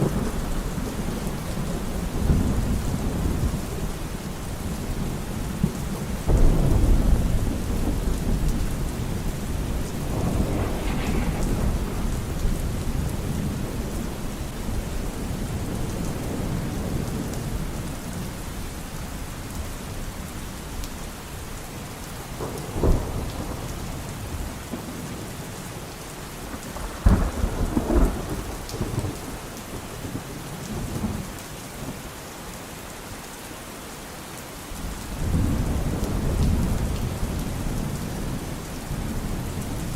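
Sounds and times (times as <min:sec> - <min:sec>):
low thunder rumble: 0:00.0 - 0:18.0, 0:26.5 - 0:31.2, 0:35.1 - 0:39.9
steady rain: 0:00.0 - 0:39.9
sharp thunderclaps: 0:06.2 - 0:17.1, 0:26.6 - 0:29.5.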